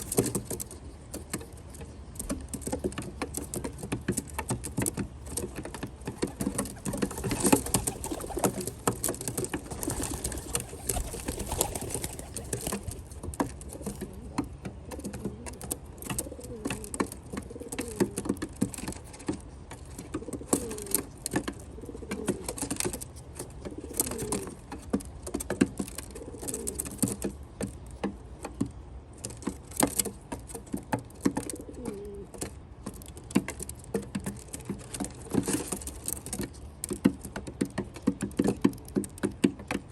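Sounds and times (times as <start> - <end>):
beaks pecking at seeds: 5.4 - 13.2
pigeons cooing: 6.0 - 13.1, 13.7 - 18.3, 20.2 - 22.6, 23.6 - 24.6, 26.1 - 26.9, 31.4 - 32.4.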